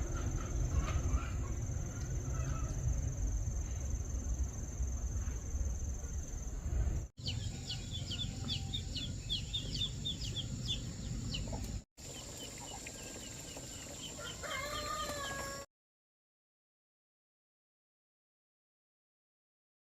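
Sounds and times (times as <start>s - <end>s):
chickens chirping: 7.2s - 15.6s
chicken wavering call: 14.2s - 15.7s.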